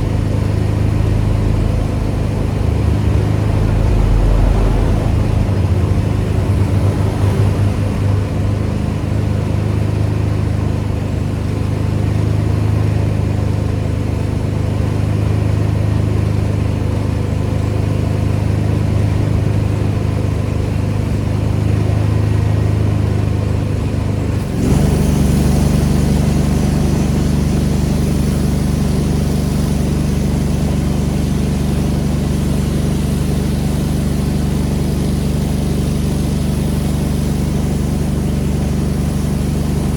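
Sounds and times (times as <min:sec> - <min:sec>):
pressure washer engine running: 0:00.0 - 0:39.9
spray gun hissing: 0:24.4 - 0:39.9.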